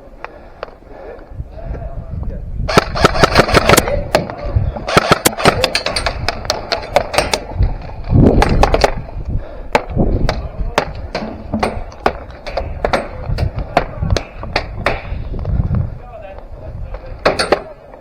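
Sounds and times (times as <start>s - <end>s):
airsoft guns firing: 2.7s - 7.6s.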